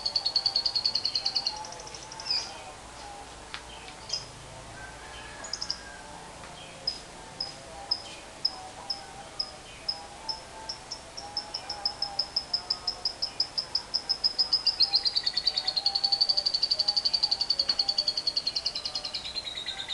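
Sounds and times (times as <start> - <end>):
lovebird chattering trill: 0.0 - 2.5, 5.5 - 5.8, 6.9 - 19.9.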